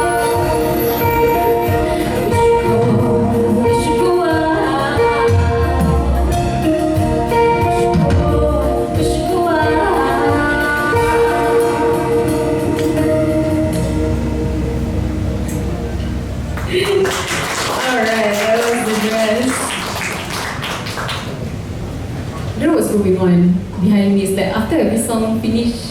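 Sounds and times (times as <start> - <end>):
person singing: 0.0 - 14.0
held instrumental chords: 0.0 - 17.1.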